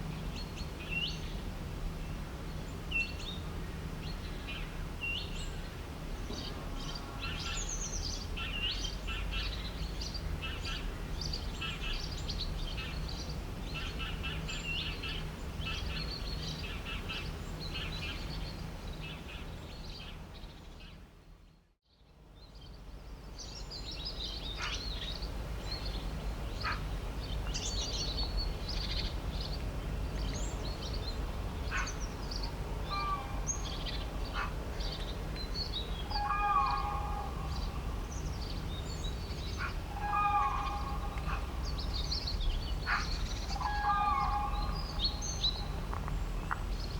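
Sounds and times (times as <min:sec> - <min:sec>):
birds chirping and singing: 0:30.2 - 0:45.8.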